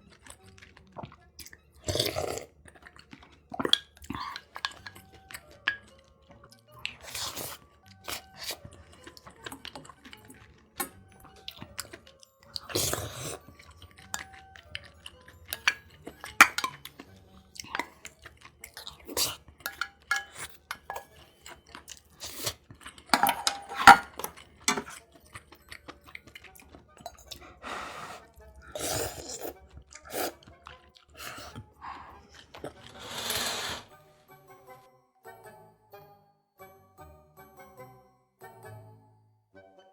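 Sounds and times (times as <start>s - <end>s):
chewing and crunching food: 0.0s - 34.0s
cutlery and dishes clinking: 4.1s - 6.0s, 15.4s - 25.4s, 26.1s - 27.4s, 32.3s - 33.9s.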